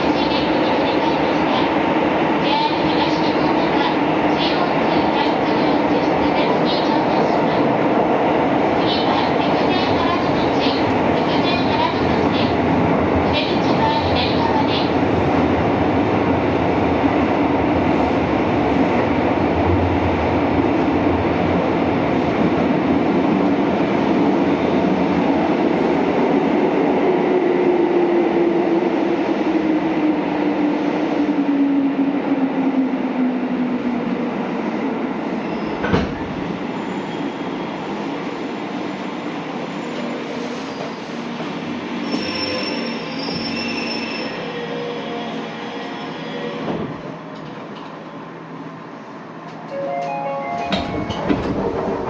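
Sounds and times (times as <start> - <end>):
train wheels rumbling in tunnel: 0.0 - 52.0
faint high squeals: 42.0 - 46.6.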